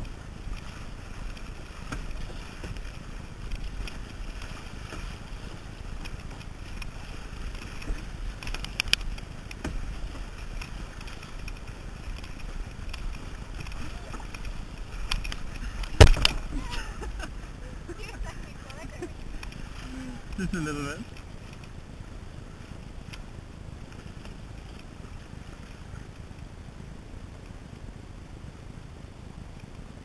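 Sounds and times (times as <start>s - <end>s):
kayak paddling: 0.0s - 30.0s
wind rumbling on microphone: 0.0s - 30.0s.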